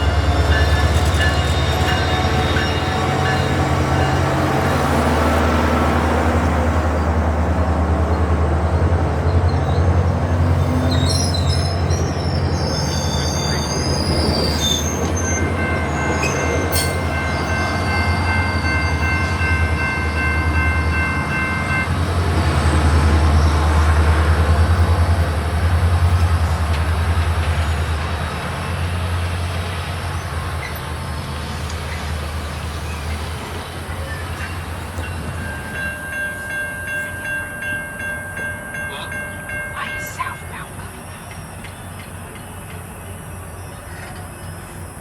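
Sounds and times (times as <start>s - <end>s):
train wheels squealing: 0.0s - 4.8s, 9.3s - 21.8s, 30.1s - 37.4s, 38.7s - 45.0s
diesel train rumbling: 0.0s - 45.0s.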